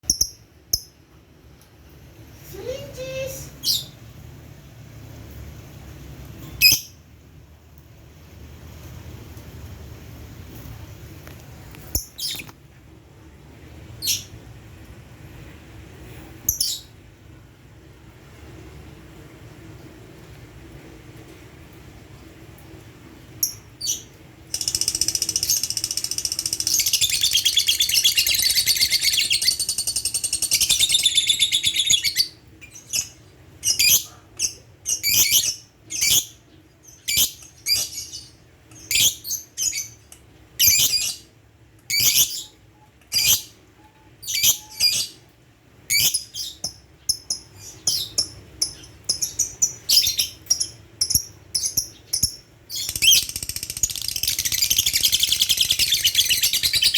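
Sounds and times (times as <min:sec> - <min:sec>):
lovebird chattering and chirping: 0:23.4 - 0:34.1, 0:34.8 - 0:36.4, 0:41.9 - 0:42.5, 0:45.9 - 0:56.9.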